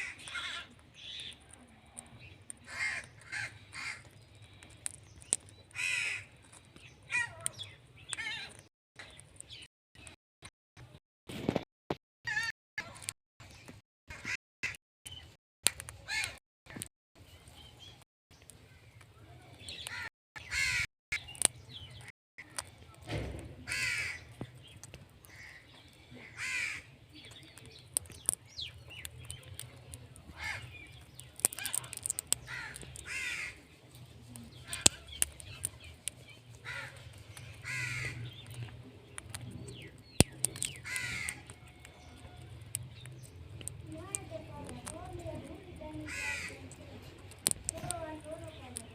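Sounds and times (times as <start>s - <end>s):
sharp clicks: 27.3s - 30.3s, 31.0s - 33.1s, 34.4s - 48.9s.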